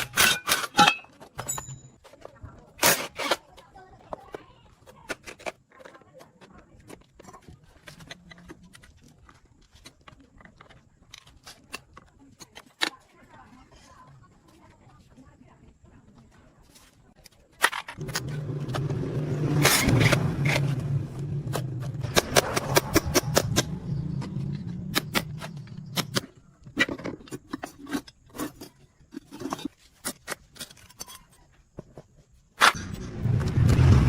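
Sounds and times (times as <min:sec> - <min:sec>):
sharp metallic clicks and knocks: 0:21.4 - 0:28.2.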